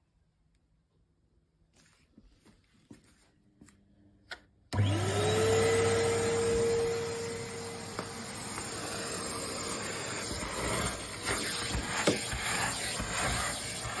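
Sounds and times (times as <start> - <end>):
vacuum cleaner motor hum: 4.7 - 14.0.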